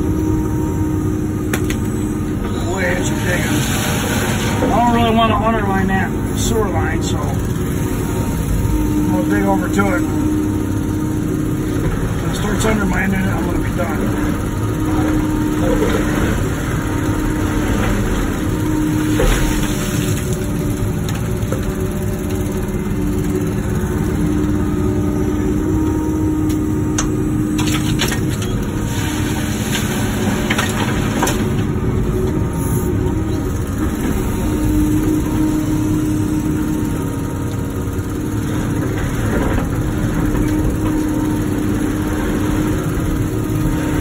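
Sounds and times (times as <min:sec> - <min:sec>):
excavator diesel engine running: 0:00.0 - 0:44.0
bucket scraping dirt and rock: 0:02.5 - 0:05.2.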